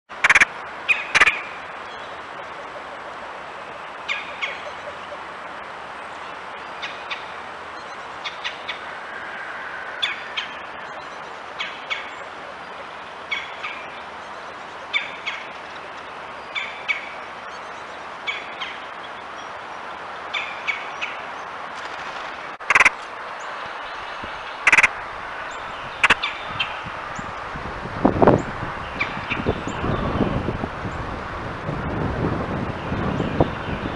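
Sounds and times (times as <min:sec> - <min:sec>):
steady background hiss: 0:00.1 - 0:33.9
loud sharp sounds: 0:00.2 - 0:00.5, 0:22.6 - 0:23.0, 0:24.7 - 0:24.9
short bird calls: 0:00.2 - 0:01.4, 0:22.6 - 0:22.9, 0:24.4 - 0:24.9, 0:26.0 - 0:26.4.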